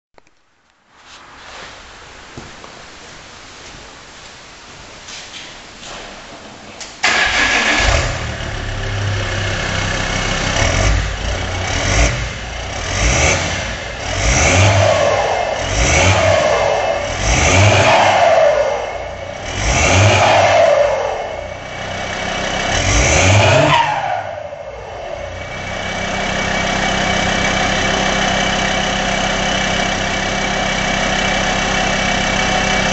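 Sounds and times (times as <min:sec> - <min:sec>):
diesel engine starting and revving: 0:07.0 - 0:32.9.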